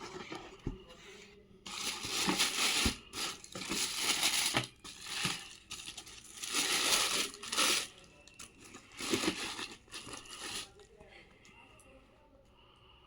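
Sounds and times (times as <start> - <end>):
packaging crinkling: 1.7 - 10.8.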